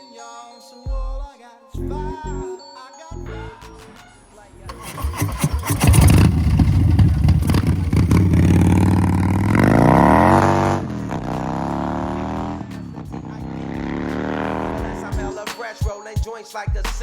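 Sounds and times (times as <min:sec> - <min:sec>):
motorcycle engine revving: 0:04.6 - 0:15.4
engine clatter: 0:04.7 - 0:15.3.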